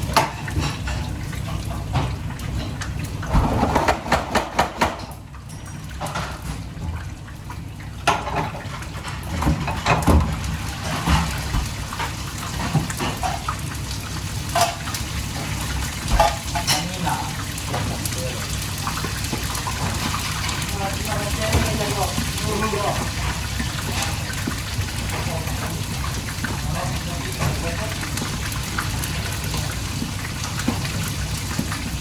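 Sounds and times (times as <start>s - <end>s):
dishes and utensils clinking: 0.0s - 2.8s, 8.0s - 13.7s, 14.4s - 18.2s
water running in sink: 0.0s - 32.0s.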